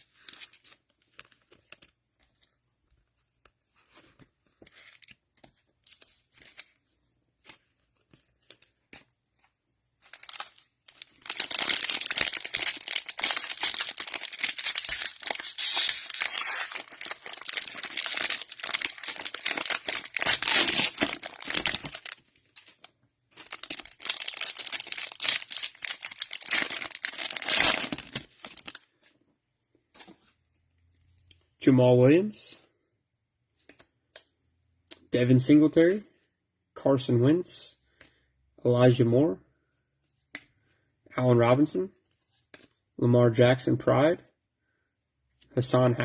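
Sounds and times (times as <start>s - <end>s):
cellophane wrapper crinkling: 10.0s - 28.9s.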